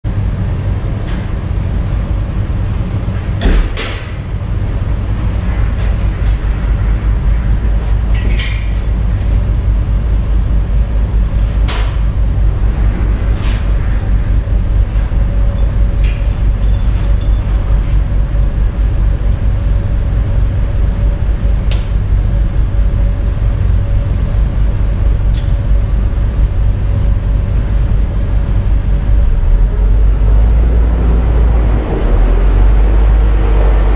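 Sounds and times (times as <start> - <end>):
diesel engine idling: 9.0 - 33.9.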